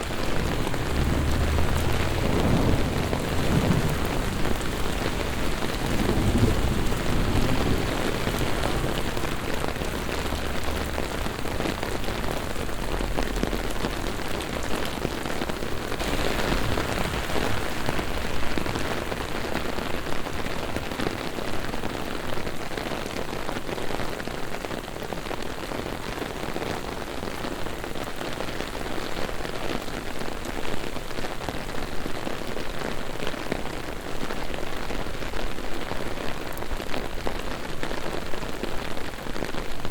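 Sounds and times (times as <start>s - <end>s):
low rumble of thunder: 0.0s - 21.4s
heavy rain on pavement: 0.0s - 39.9s.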